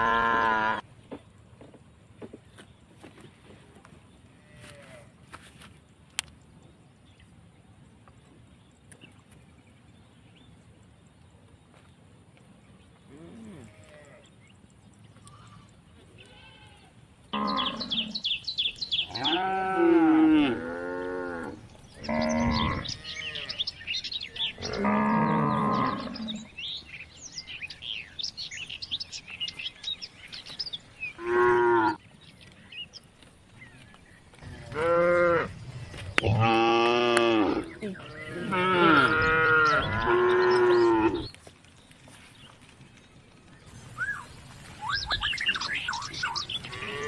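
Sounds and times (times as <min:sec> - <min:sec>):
cattle mooing: 0:00.0 - 0:00.8, 0:19.1 - 0:23.7, 0:24.4 - 0:26.5, 0:31.2 - 0:32.0, 0:34.6 - 0:35.5, 0:36.2 - 0:41.3.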